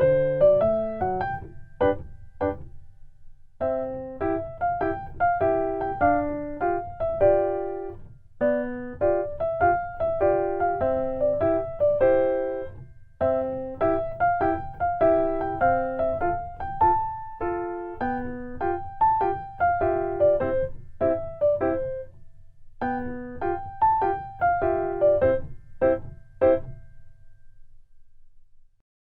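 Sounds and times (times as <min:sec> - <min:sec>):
bouncy piano music: 0:00.0 - 0:02.9, 0:03.6 - 0:22.2, 0:22.8 - 0:27.3.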